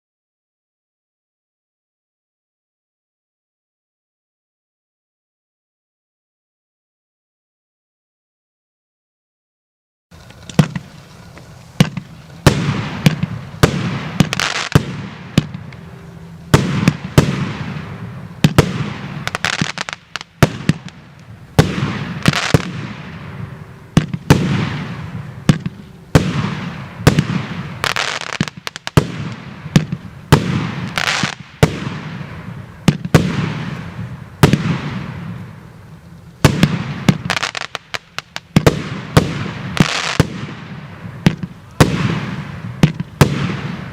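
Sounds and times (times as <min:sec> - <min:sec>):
firework bangs with hiss: 0:10.1 - 0:43.9.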